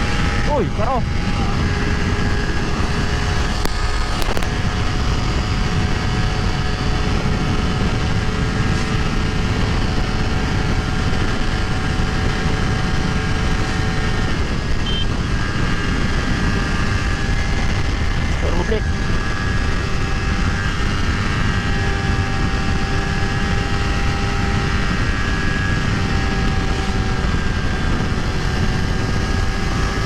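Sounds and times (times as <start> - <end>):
motorcycle engine running: 0.0 - 30.0
wind noise on microphone: 0.0 - 30.0.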